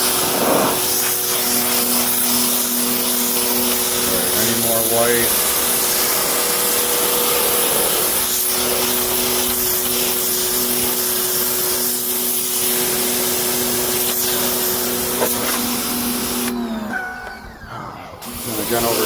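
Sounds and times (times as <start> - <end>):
pressure washer spraying water: 0.0 - 17.6, 18.2 - 19.0
pump motor humming: 0.0 - 19.0.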